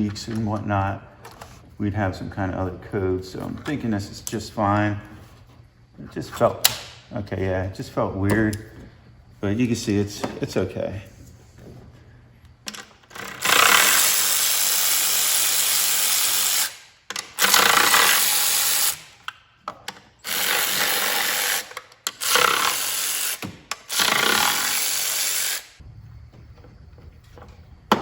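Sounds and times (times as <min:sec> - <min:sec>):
handheld power tool bursts: 0:13.0 - 0:19.4, 0:20.2 - 0:25.8.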